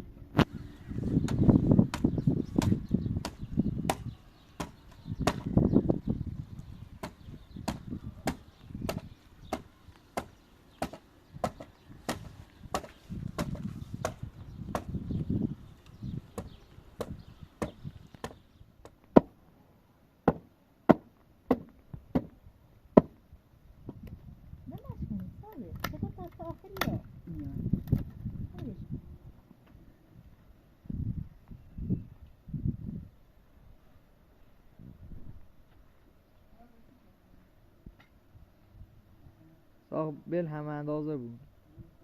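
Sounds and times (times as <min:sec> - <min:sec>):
tool chopping into wood: 0:01.2 - 0:05.6, 0:07.0 - 0:15.0, 0:16.4 - 0:19.4, 0:20.2 - 0:22.4, 0:23.0 - 0:23.2.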